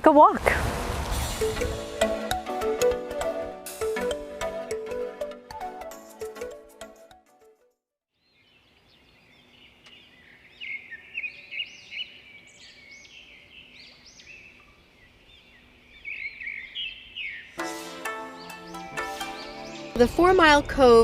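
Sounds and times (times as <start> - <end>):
wild birds singing and chirping: 8.2 - 20.7.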